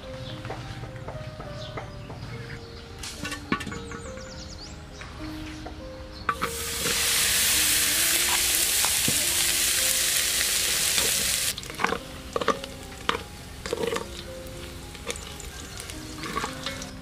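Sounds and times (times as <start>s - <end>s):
meat sizzling in a pot: 6.4s - 17.0s.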